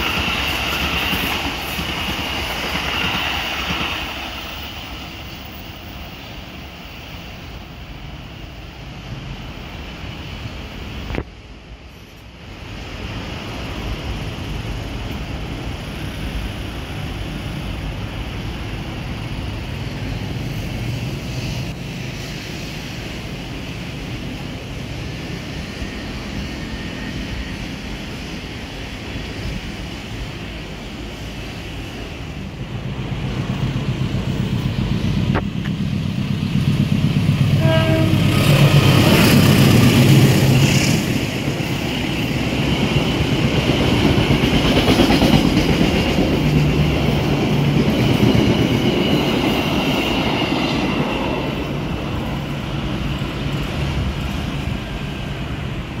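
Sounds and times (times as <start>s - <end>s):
train wheels rumbling on track: 0.0s - 56.0s
train horn: 37.4s - 39.0s.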